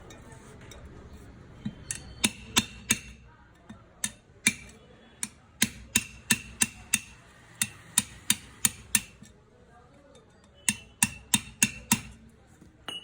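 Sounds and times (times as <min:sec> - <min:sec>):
hammer tapping on metal: 0:01.6 - 0:09.3, 0:10.6 - 0:12.2.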